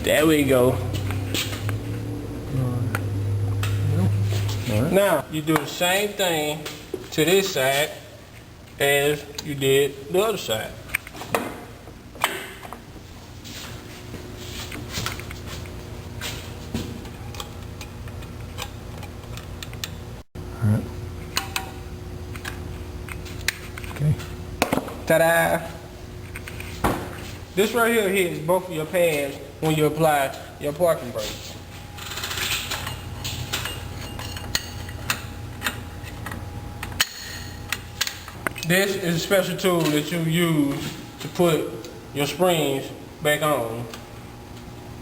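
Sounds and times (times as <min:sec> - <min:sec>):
steady low hum: 0:00.0 - 0:45.0
metal parts and tools clinking: 0:32.0 - 0:36.4.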